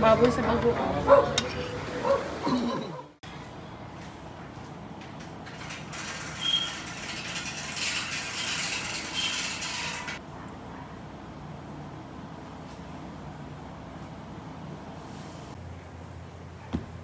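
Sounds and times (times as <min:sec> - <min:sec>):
mechanical clattering and rattling: 0:05.1 - 0:10.2.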